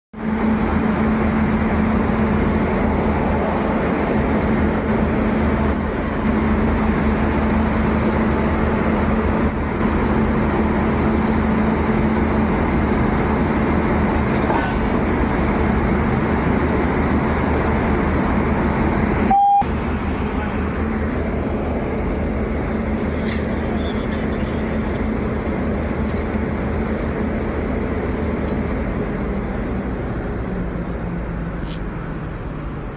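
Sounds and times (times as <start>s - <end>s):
train rumbling: 0.2s - 32.9s
short clear beep: 19.3s - 19.7s.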